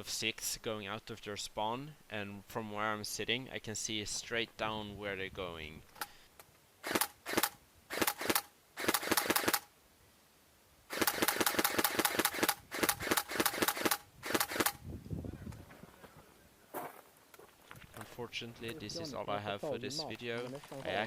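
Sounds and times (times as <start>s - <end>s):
airsoft rifle full-auto bursts: 6.8s - 9.7s, 10.9s - 14.8s.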